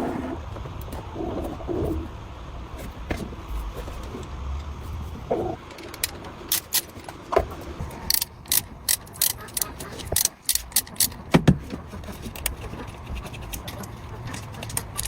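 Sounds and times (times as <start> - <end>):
low steady rumble: 0.0 - 15.0
sharp clicks: 5.7 - 7.2, 8.0 - 11.5
metal tools clinking and knocking: 12.2 - 15.0.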